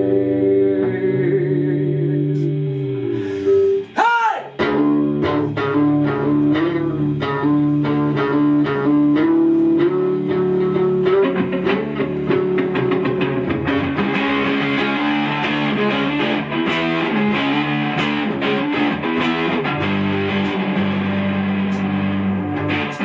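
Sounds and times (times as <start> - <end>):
bass guitar: 4.6 - 23.0
guitars strumming: 4.6 - 23.0
rock band playing instrumental: 4.6 - 23.0.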